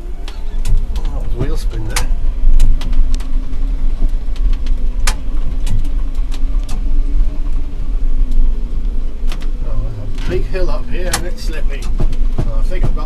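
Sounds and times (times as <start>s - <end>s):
electric motor hum: 0.0s - 13.0s
low rumble: 0.0s - 13.0s
truck body knocks and rattles: 11.1s - 13.0s.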